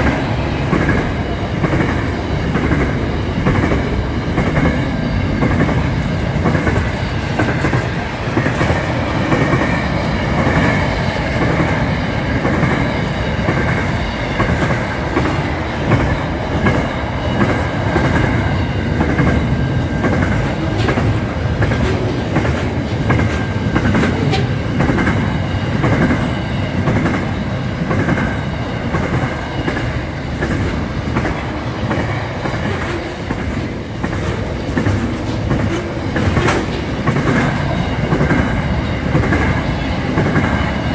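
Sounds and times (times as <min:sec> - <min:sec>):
freight train wagons rumbling: 0:00.0 - 0:40.9
wheels clacking over rail joints: 0:00.0 - 0:40.9.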